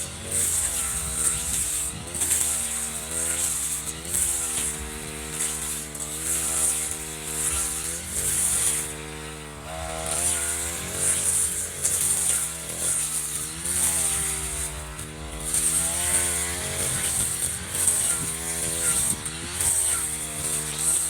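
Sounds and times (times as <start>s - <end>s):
brush cutter engine revving: 0.0s - 21.0s.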